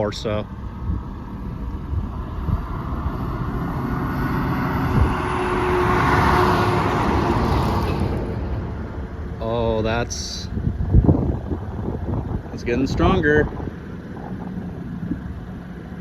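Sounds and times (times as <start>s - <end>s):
low wind rumble: 0.0s - 16.0s
vehicle driving past: 0.5s - 12.4s.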